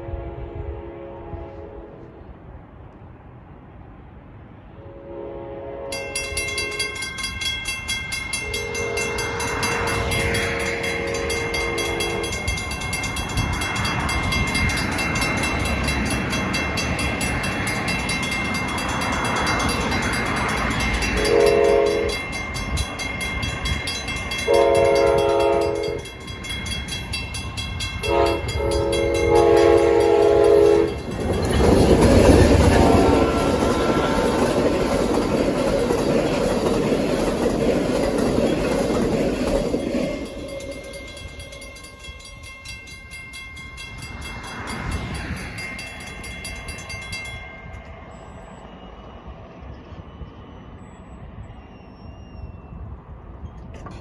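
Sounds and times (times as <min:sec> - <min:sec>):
locomotive horn blasts: 0:00.0 - 0:02.3, 0:04.8 - 0:07.0, 0:08.3 - 0:12.8, 0:20.5 - 0:22.4, 0:24.3 - 0:26.2, 0:27.8 - 0:31.1, 0:32.6 - 0:34.9
train engine and wheels rumbling: 0:00.0 - 0:54.0
mechanical crossing bell ringing: 0:06.0 - 0:48.3.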